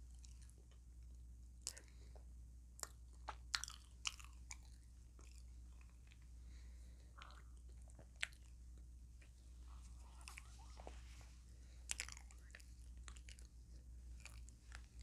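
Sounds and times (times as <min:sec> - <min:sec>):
chewing crunchy taco shell: 0:02.8 - 0:06.4, 0:07.1 - 0:09.3, 0:11.8 - 0:15.0.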